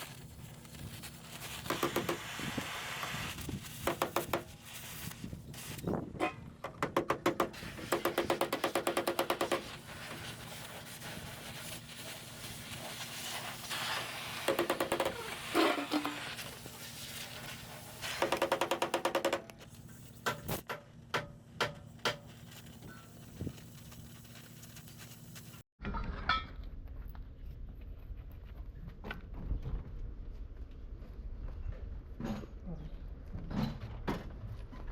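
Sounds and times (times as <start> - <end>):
power tool rapid tapping: 1.7 - 3.2, 6.9 - 9.7, 14.4 - 16.2, 18.1 - 19.5.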